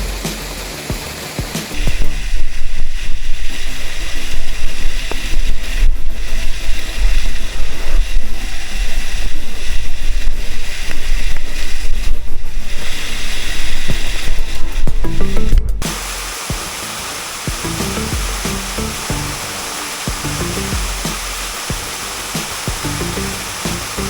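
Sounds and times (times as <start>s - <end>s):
rumbling buffeting on microphone: 0.0s - 24.0s
waterfall rushing: 15.8s - 24.0s.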